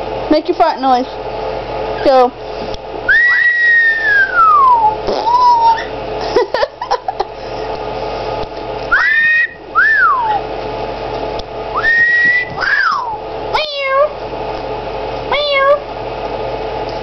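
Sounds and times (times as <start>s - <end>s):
steady background hum: 0.0s - 17.0s
parrot meow-like calls: 3.1s - 5.9s, 8.9s - 10.4s, 12.6s - 14.1s
parrot whistling: 3.1s - 5.9s, 8.9s - 10.4s, 11.8s - 13.2s.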